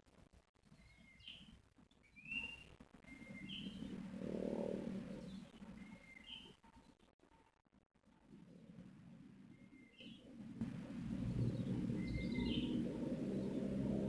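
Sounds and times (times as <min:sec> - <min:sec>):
low rumble: 0:10.6 - 0:14.0.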